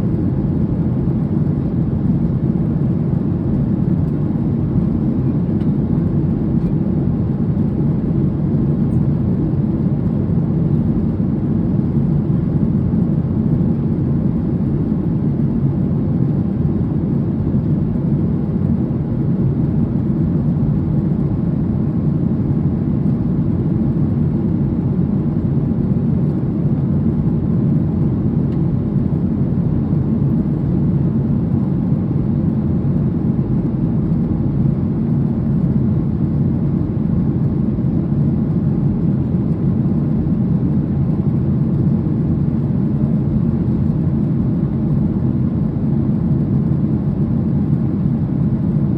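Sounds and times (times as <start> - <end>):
airliner cabin engine rumble: 0.0 - 48.9.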